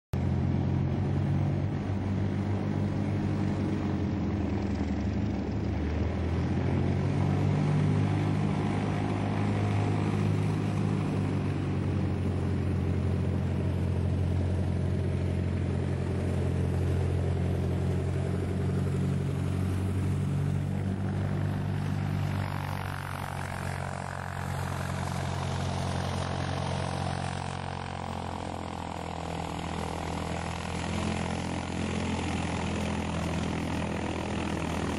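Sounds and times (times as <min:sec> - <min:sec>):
helicopter engines and rotors: 0:00.2 - 0:34.9.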